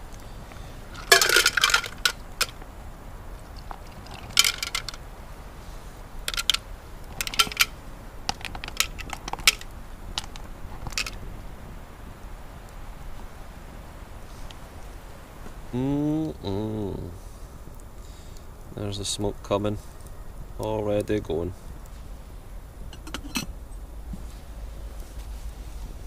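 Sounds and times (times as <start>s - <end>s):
mussel shells clattering on metal: 1.0s - 2.6s, 4.0s - 5.0s, 6.3s - 6.6s, 7.2s - 9.6s, 10.9s - 11.2s, 22.9s - 23.5s.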